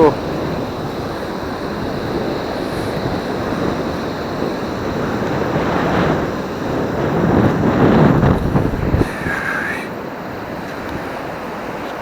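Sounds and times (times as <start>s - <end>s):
surf washing up the beach: 0.0s - 12.0s
wind on microphone: 0.0s - 12.0s.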